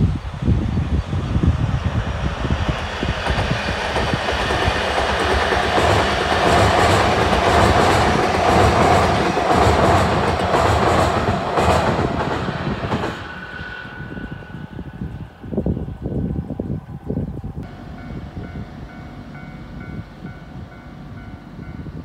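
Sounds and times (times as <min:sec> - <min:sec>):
train whine: 0:00.0 - 0:22.0
wheels clacking over rail joints: 0:03.0 - 0:13.4.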